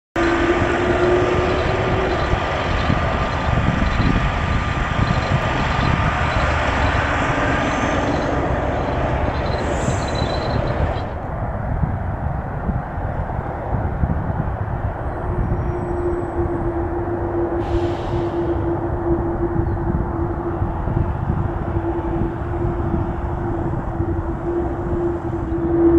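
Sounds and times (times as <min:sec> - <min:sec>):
jet engines roaring with whine: 0:00.2 - 0:25.9.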